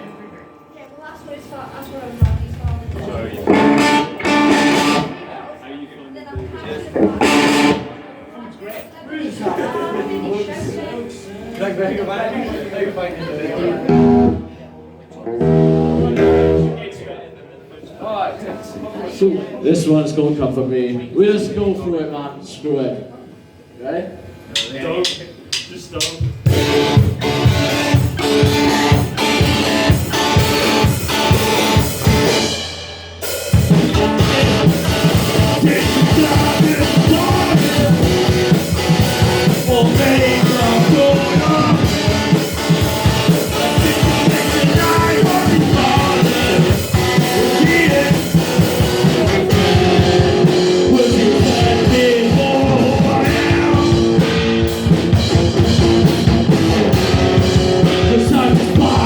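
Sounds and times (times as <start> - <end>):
rock band playing: 2.8 - 5.4, 6.9 - 8.2, 13.8 - 14.6, 15.2 - 17.0, 26.3 - 59.0.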